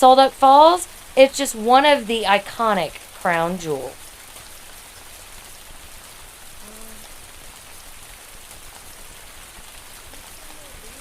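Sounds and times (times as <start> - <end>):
steady rain falling: 0.0 - 11.0
faint voice: 6.6 - 7.1, 10.2 - 11.0.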